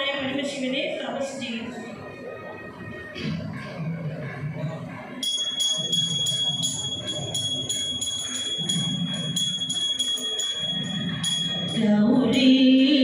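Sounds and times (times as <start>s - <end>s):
hand cymbals ringing rhythmically: 4.8s - 12.7s.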